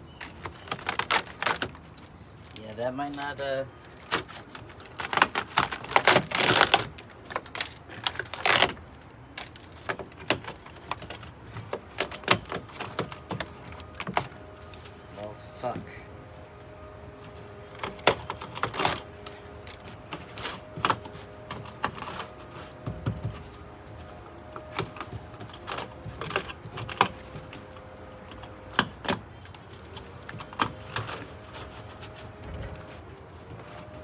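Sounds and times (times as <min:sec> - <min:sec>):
tools knocking on wooden panels: 0:22.8 - 0:23.5.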